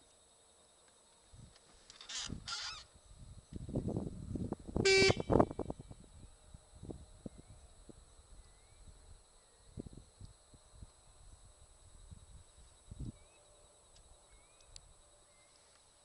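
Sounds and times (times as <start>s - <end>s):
short honk: 4.8s - 5.4s
faint bird chirps: 8.4s - 9.7s, 13.0s - 15.7s.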